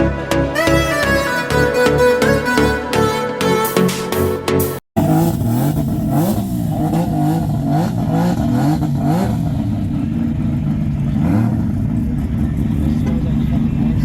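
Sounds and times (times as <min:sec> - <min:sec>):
car engine revving: 0:03.8 - 0:14.0.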